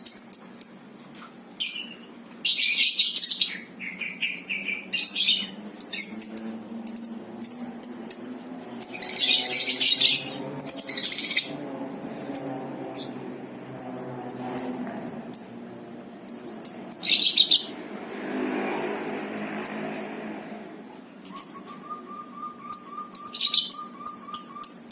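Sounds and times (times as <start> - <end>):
birds chirping: 1.6 - 24.9.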